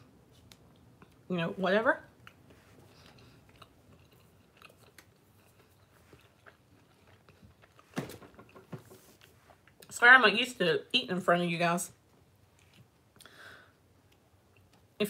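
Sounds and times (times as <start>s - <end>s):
person chewing food: 2.1s - 9.9s, 12.4s - 15.0s.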